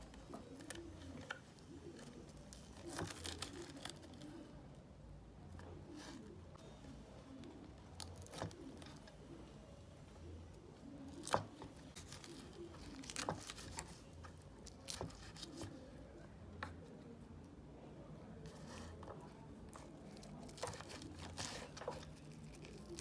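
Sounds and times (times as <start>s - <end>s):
soft rustling: 18.2s - 23.0s.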